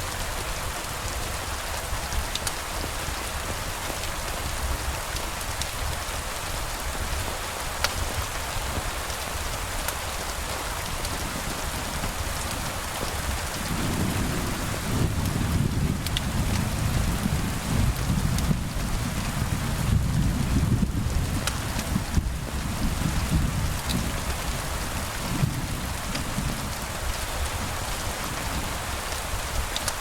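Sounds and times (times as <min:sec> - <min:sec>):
rain hissing: 0:00.1 - 0:30.0
distant thunder rumble: 0:13.1 - 0:21.4.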